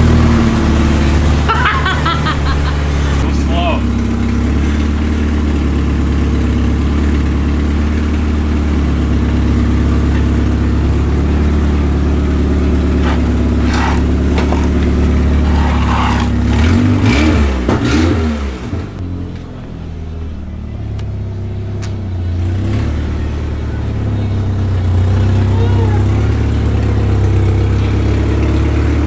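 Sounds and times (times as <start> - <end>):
loud four-cylinder engine running: 0.0 - 29.0.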